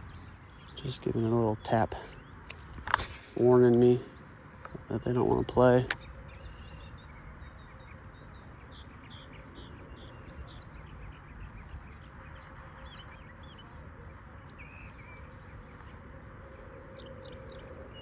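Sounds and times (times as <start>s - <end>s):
outdoor background hiss: 0.0s - 13.3s
birds chirping: 0.0s - 18.0s.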